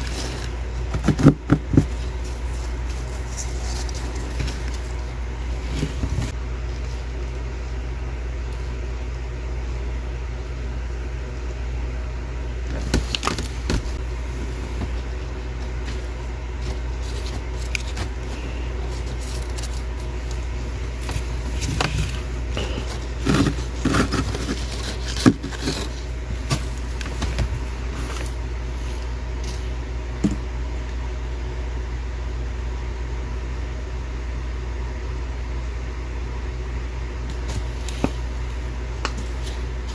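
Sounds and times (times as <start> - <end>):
freezer frost crunching: 0.0 - 7.7, 12.6 - 30.4
low mechanical hum: 0.0 - 39.9.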